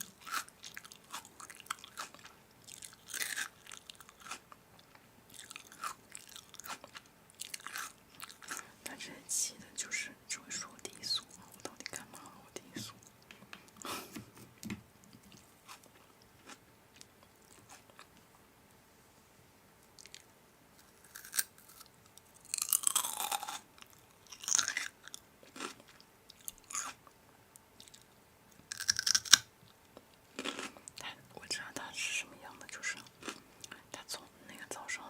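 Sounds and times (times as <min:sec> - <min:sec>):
person chewing crunchy food: 0:00.0 - 0:08.7, 0:15.2 - 0:18.1, 0:20.0 - 0:27.1, 0:27.8 - 0:31.0, 0:32.8 - 0:33.8.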